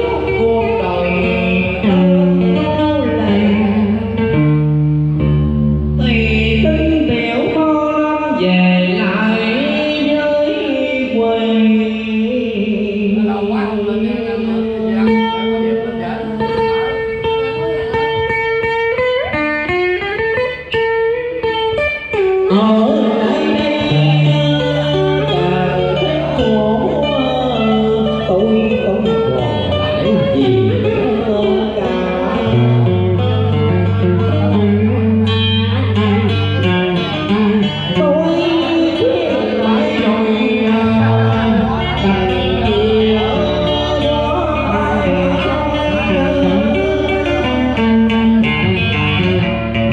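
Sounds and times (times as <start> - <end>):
guitar plucked runs: 0.0 - 49.9
long held low notes: 23.6 - 49.4.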